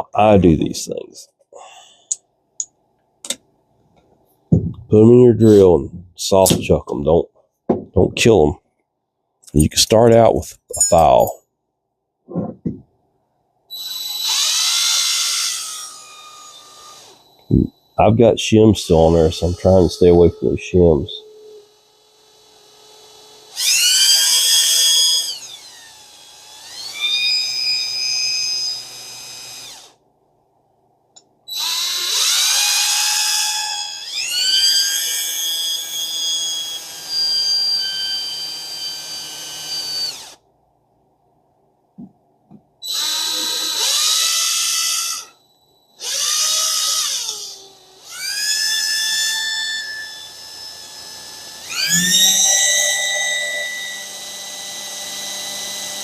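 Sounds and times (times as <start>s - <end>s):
electric drill whining: 13.7s - 17.9s, 18.8s - 20.6s, 21.2s - 30.0s, 31.5s - 40.4s, 42.8s - 56.0s.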